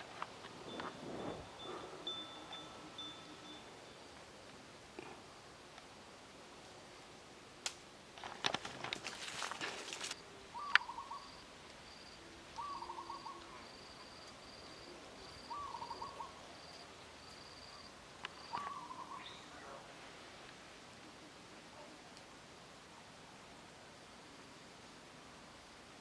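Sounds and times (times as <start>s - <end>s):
rustling and crackling: 0.0s - 2.6s, 7.6s - 10.2s
faint high chirping: 0.5s - 4.2s, 10.1s - 19.8s
bird trilled call: 10.5s - 11.4s, 12.6s - 13.6s, 15.5s - 16.4s, 18.5s - 19.5s.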